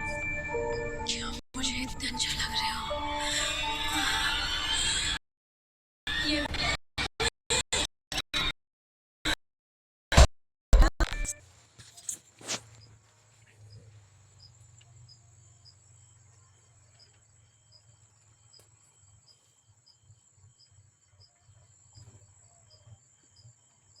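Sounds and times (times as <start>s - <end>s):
crickets chirping: 12.0s - 24.0s.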